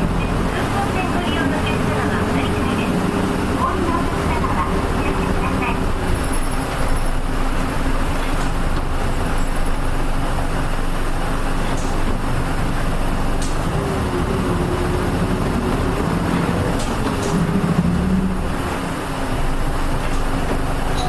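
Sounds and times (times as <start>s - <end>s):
bus diesel engine and road noise: 0.0s - 21.0s.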